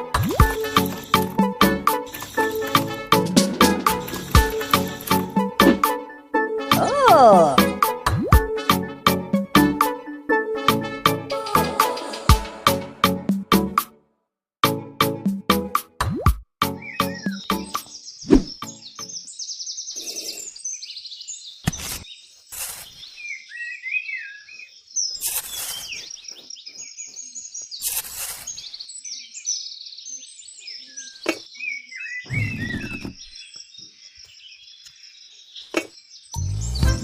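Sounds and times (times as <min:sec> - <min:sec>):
small birds chirping: 0:16.7 - 0:37.0.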